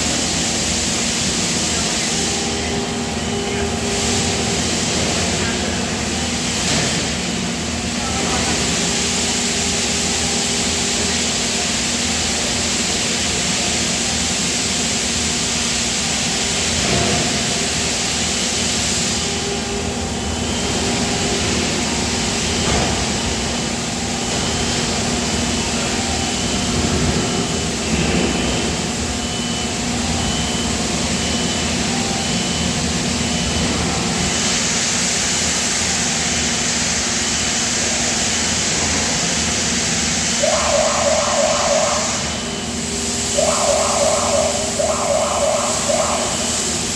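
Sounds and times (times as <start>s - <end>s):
industrial machinery hum and hiss: 0.0s - 46.9s
high electronic beep: 40.4s - 42.7s, 43.3s - 46.9s.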